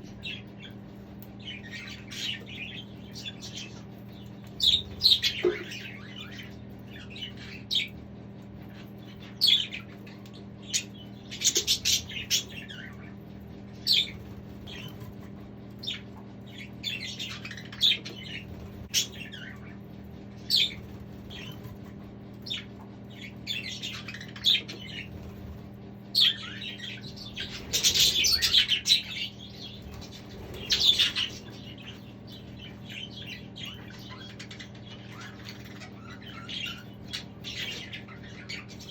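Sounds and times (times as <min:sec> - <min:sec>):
budgerigars chirping and chattering: 0:00.0 - 0:38.9
steady low hum: 0:00.0 - 0:38.9.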